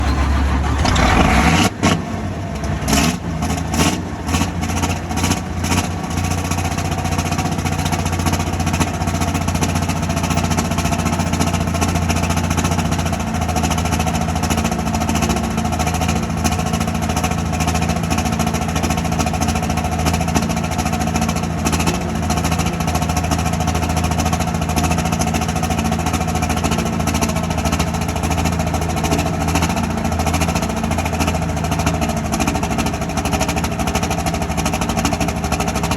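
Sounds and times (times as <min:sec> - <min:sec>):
engine sharp cracks: 0:00.0 - 0:06.0
tractor engine idling: 0:00.0 - 0:35.9.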